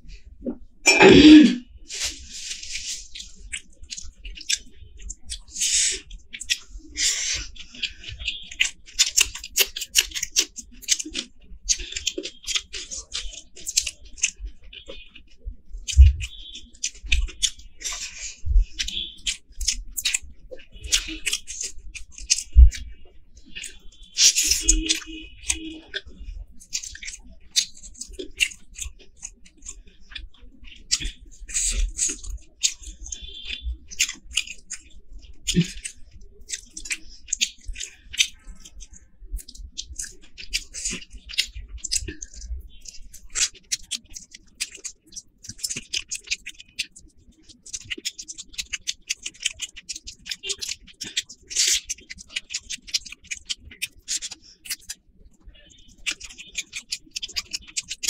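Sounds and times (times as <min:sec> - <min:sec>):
person chewing food: 0:00.1 - 0:58.0
wet lip smacks: 0:47.7 - 0:55.0.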